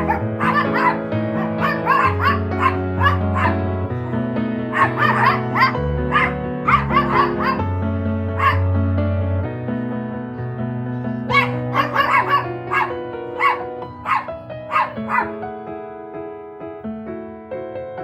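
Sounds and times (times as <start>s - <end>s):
small dog yapping: 0.0s - 3.6s, 4.7s - 7.6s, 8.4s - 8.6s, 11.3s - 15.3s
gentle piano music: 0.0s - 18.0s.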